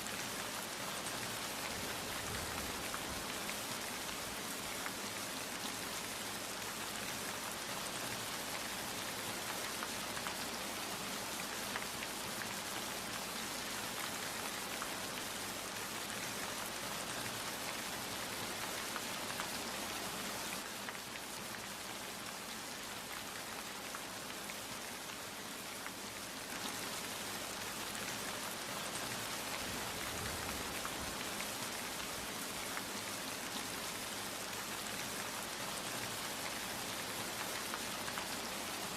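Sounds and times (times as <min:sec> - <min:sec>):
rain pattering on a surface: 0:00.0 - 0:38.9.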